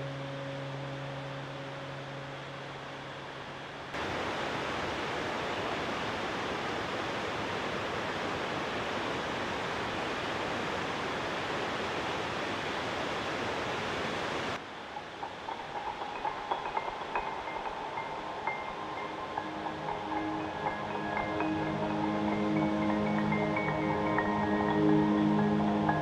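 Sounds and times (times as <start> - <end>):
rushing water: 3.9 - 26.0
soft chime-like music: 15.0 - 26.0.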